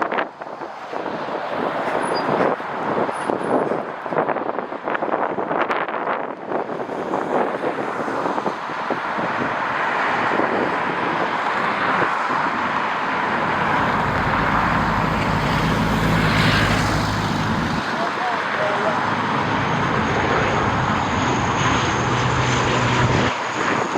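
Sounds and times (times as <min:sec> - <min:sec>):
jet engines rumbling: 0:00.0 - 0:23.9
wind buffeting microphone: 0:00.0 - 0:23.9.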